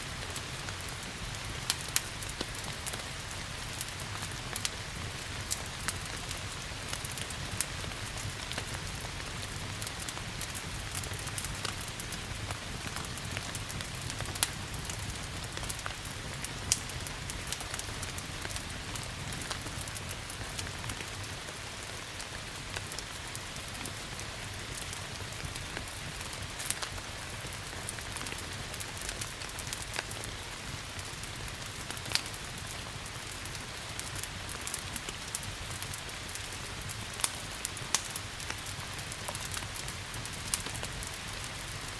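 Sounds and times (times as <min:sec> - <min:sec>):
wood fire crackling and popping: 0:00.0 - 0:41.9.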